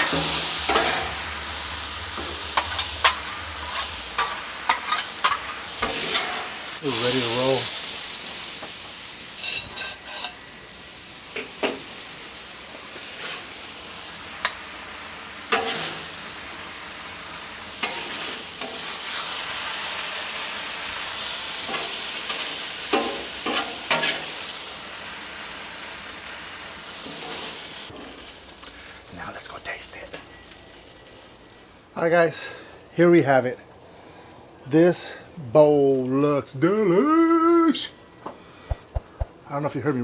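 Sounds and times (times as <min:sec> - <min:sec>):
metal spatula scraping griddle: 0:00.0 - 0:06.8, 0:09.4 - 0:10.5, 0:13.1 - 0:13.5, 0:15.5 - 0:16.1, 0:21.7 - 0:24.3
food sizzling on griddle: 0:00.0 - 0:34.3.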